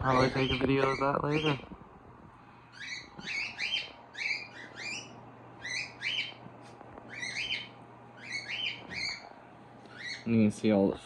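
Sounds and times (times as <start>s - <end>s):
parrots chirping: 0.0s - 1.7s, 2.7s - 6.4s, 7.0s - 10.3s
low steady hum: 0.0s - 11.0s.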